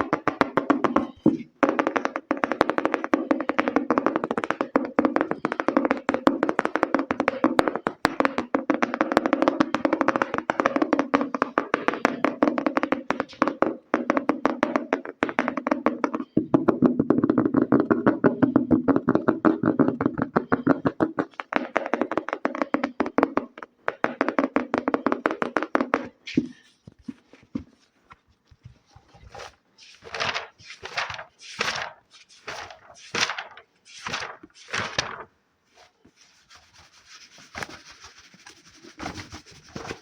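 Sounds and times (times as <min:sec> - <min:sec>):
fingers tapping hard object: 0:00.0 - 0:26.7.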